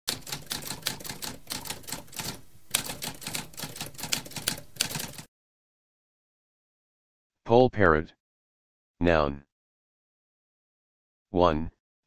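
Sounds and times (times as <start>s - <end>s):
typewriter keys clattering: 0.1s - 5.3s.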